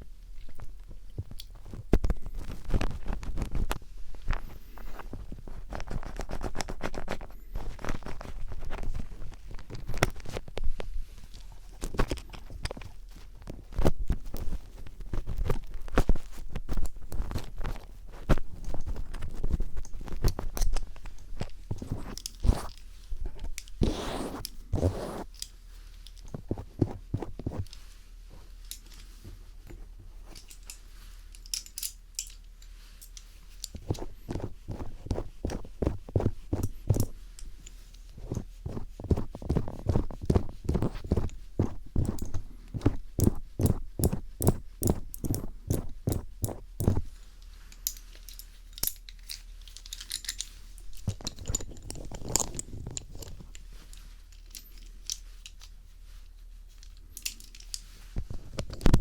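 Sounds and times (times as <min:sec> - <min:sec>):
screwdriver scratching a microphone: 0:04.8 - 0:10.4, 0:21.8 - 0:22.8, 0:23.8 - 0:25.4, 0:38.2 - 0:47.1.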